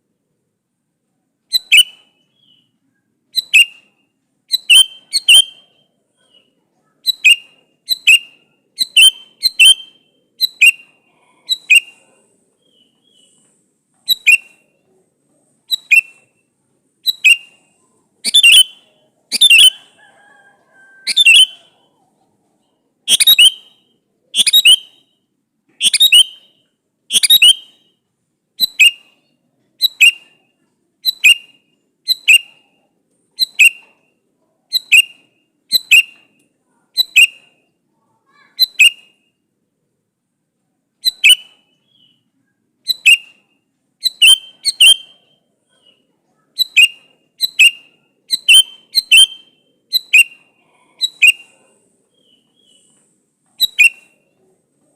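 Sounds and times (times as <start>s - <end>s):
bulbul calling sharp notes: 4.5s - 5.8s, 7.0s - 12.0s, 14.0s - 14.7s, 17.0s - 20.0s, 23.1s - 25.2s, 25.8s - 28.0s, 42.8s - 43.4s, 44.0s - 45.4s, 46.6s - 51.5s.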